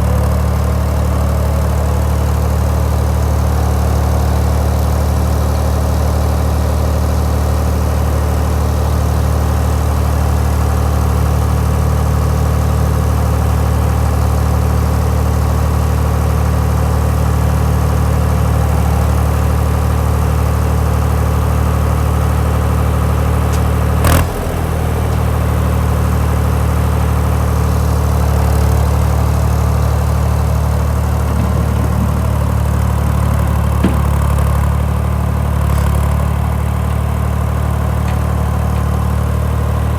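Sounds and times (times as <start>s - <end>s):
tractor diesel engine running: 0.0s - 39.9s
sharp knock: 33.5s - 34.6s.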